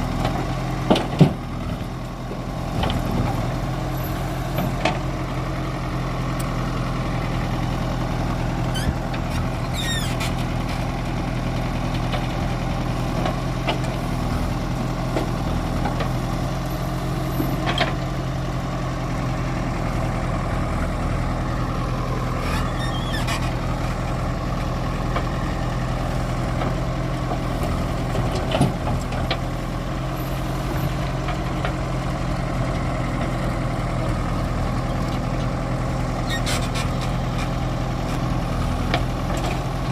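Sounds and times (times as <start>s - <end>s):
heavy diesel engine running: 0.0s - 39.9s
machinery clanks and squeaks: 8.5s - 10.9s, 22.2s - 24.0s, 36.1s - 38.2s.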